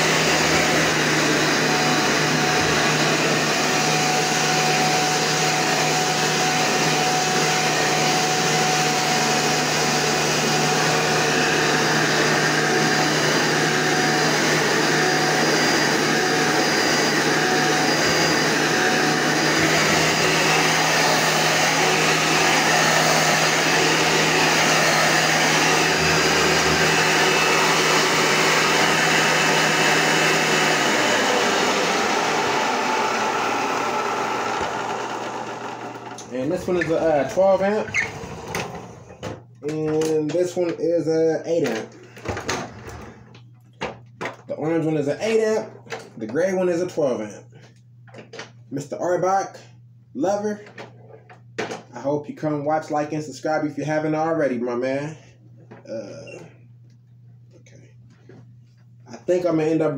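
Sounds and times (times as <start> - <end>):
vacuum motor winding down: 0.0 - 40.3
vacuum cleaner running: 0.0 - 48.3, 55.2 - 59.9.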